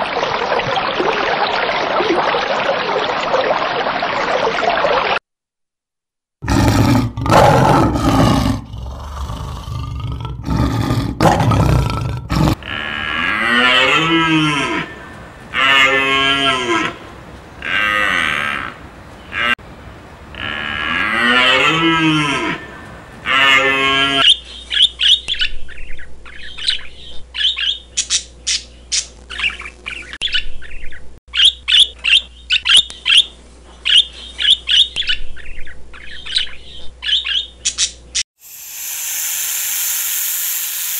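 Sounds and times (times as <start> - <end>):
budgerigars chirping: 24.2 - 38.0.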